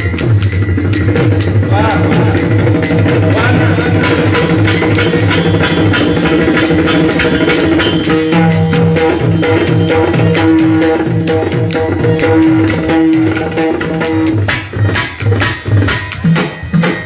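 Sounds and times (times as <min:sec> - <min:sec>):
drum beat: 0:00.0 - 0:17.0
hand cymbals: 0:00.0 - 0:17.0
sustained melody: 0:00.0 - 0:17.0.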